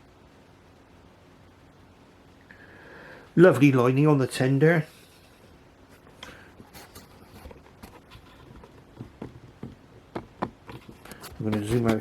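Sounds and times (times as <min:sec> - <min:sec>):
handling noise clicks and taps: 0:08.5 - 0:12.0.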